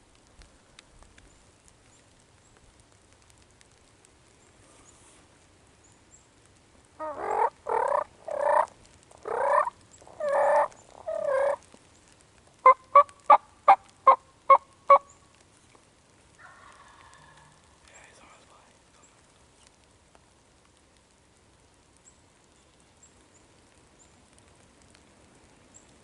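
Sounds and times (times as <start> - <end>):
turkey yelping: 7.0 - 11.6, 12.6 - 15.1.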